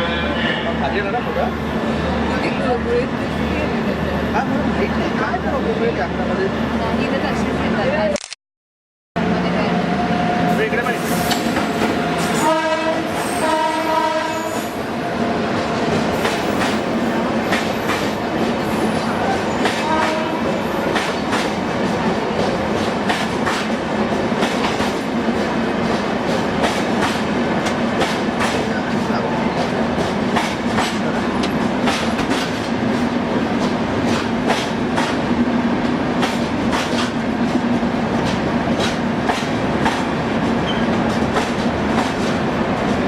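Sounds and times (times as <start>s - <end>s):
train rumble: 0.0s - 8.1s, 9.2s - 43.0s
train wheels clacking over rail joints: 15.6s - 28.8s, 29.5s - 35.2s, 36.2s - 43.0s.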